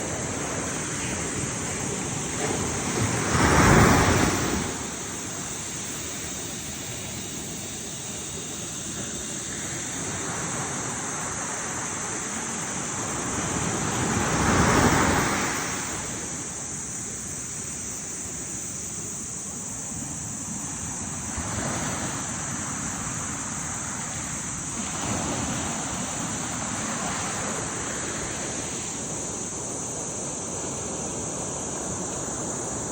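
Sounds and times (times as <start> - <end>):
ocean waves breaking: 0.0 - 7.5, 8.7 - 16.7, 20.8 - 29.6.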